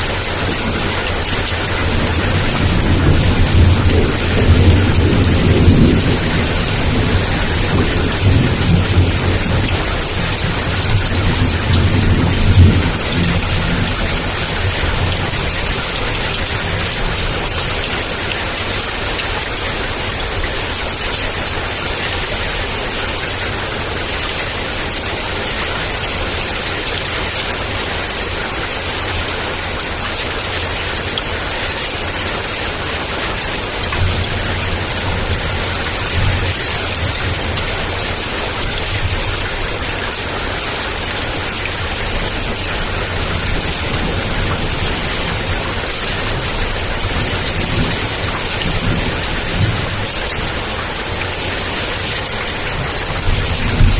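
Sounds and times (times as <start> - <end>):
heavy rain pouring: 0.0 - 53.9
low thunder rumble: 0.4 - 18.8, 52.8 - 53.9.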